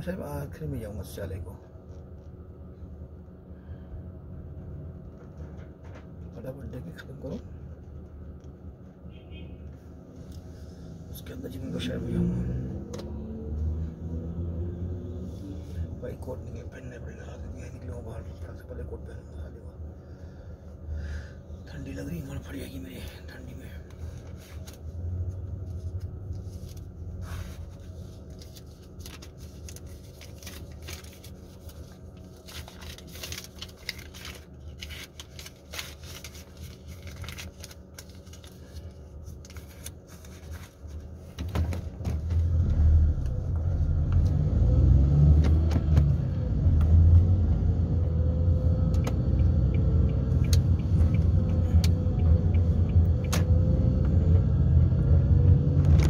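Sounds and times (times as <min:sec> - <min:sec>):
road rumble: 0:09.9 - 0:56.0
car engine: 0:10.6 - 0:17.4, 0:40.2 - 0:56.0.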